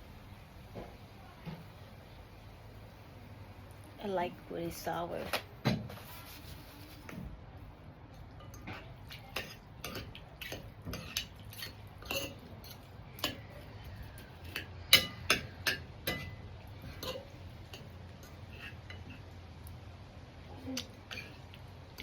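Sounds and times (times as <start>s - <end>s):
cutlery clinking against bowl: 8.3s - 13.7s, 14.3s - 19.2s, 20.8s - 21.5s.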